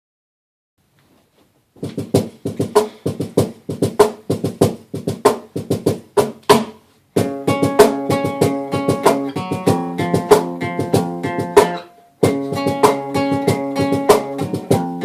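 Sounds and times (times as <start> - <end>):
acoustic guitar picking: 6.6 - 15.0.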